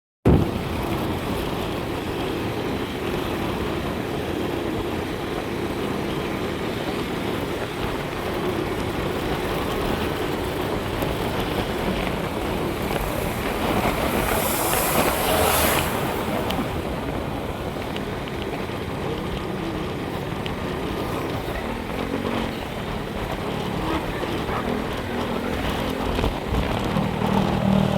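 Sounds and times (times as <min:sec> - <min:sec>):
moving vehicle rumble: 0:00.2 - 0:27.9
wind-like hiss: 0:11.7 - 0:19.0.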